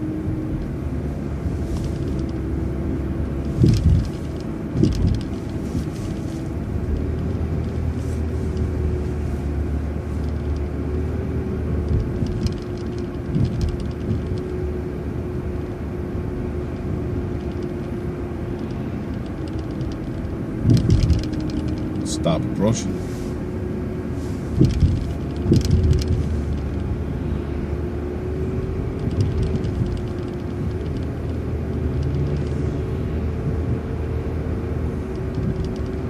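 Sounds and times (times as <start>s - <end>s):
bus engine and road rumble: 0.0s - 36.0s
sharp thumps: 3.4s - 6.3s, 19.6s - 22.1s, 24.4s - 26.7s.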